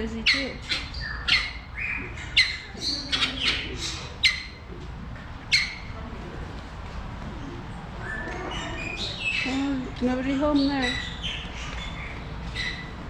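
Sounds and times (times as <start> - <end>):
birds squawking: 0.0 - 4.7, 5.5 - 6.0, 8.0 - 13.0.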